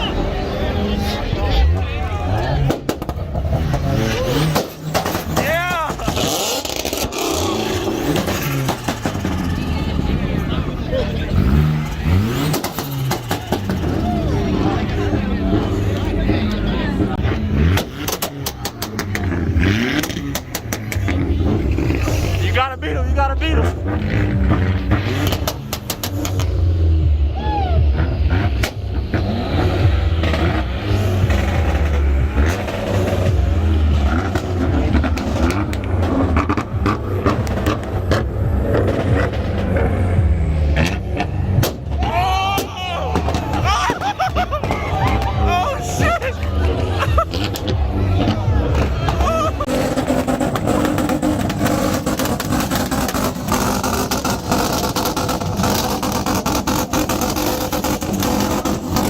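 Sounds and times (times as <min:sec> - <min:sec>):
car engine droning at high revs: 0:00.0 - 0:42.2, 0:42.8 - 0:59.0
exhaust pops and bangs: 0:02.6 - 0:09.7, 0:11.4 - 0:15.2, 0:17.6 - 0:22.8, 0:23.6 - 0:26.6, 0:28.0 - 0:45.4, 0:46.0 - 0:59.0
exhaust pops and cracks: 0:40.8 - 0:45.3.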